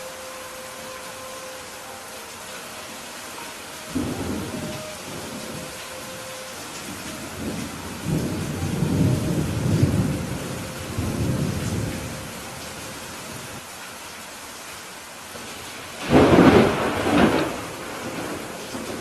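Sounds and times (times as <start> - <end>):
rain hissing: 0.0 - 19.0
thunder rumbling: 3.9 - 12.8, 16.0 - 19.0.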